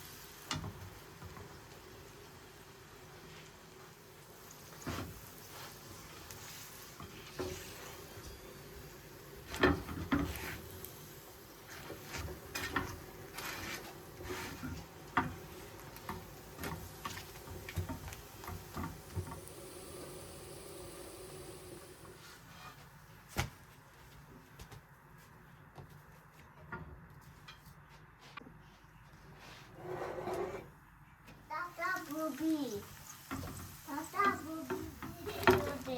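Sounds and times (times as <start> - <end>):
faint steady hum: 19.1 - 22.2.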